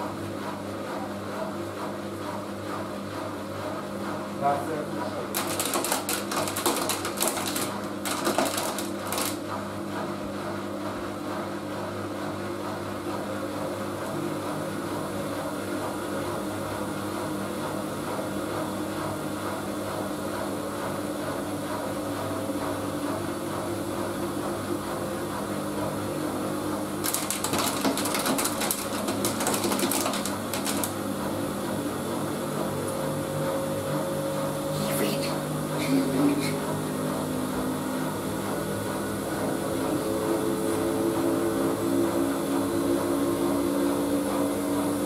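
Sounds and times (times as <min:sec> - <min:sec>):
washing machine motor humming: 0:00.0 - 0:45.0
crackling rattling noise: 0:05.3 - 0:09.4, 0:27.0 - 0:31.0.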